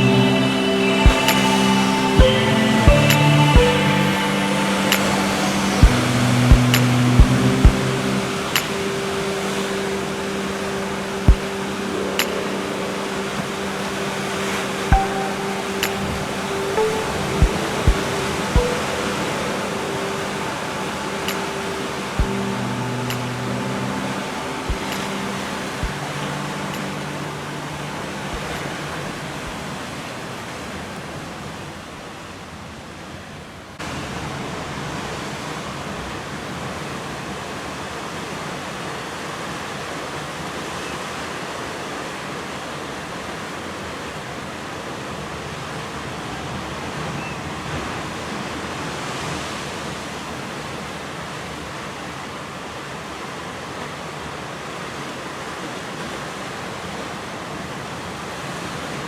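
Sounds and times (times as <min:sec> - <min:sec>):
ocean surf breaking on sand: 0:00.0 - 0:30.9.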